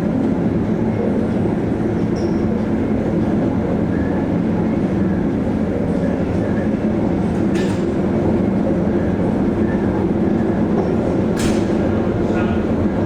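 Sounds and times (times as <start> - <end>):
ship machinery low rumble: 5.6 - 13.0.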